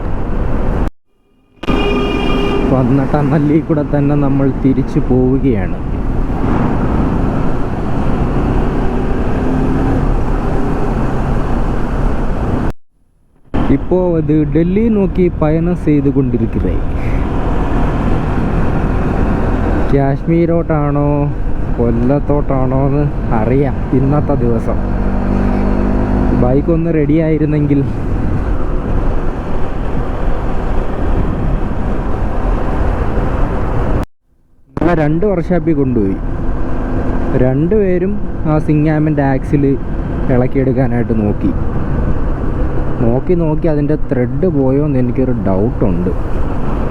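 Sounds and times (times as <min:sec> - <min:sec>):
road rumble: 0:00.0 - 0:12.8, 0:13.4 - 0:34.1, 0:34.7 - 0:46.9
wind on microphone: 0:16.8 - 0:19.9, 0:27.4 - 0:34.0, 0:41.4 - 0:43.3.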